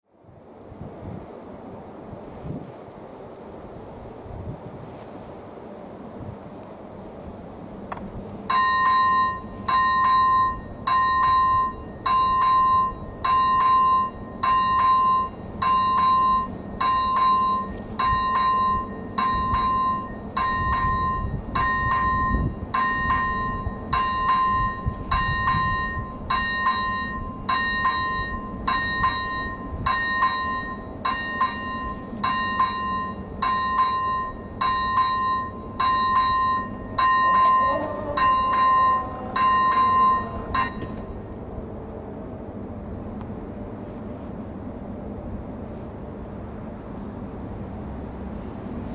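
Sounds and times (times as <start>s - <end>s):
level crossing warning bell: 7.9s - 42.9s.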